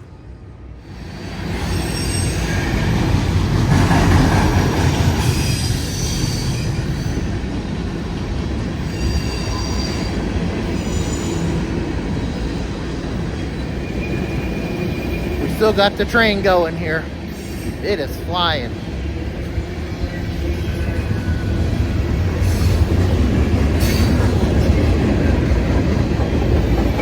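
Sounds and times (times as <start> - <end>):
train wheels rumbling on rail: 0.0 - 27.0
high-pitched wheel squeal: 1.5 - 2.9, 8.9 - 11.6.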